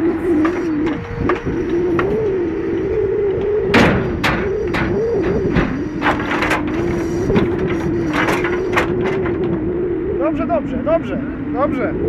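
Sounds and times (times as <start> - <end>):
hydraulic crane whine: 0.0 - 12.0
logs knocking together: 3.7 - 9.6.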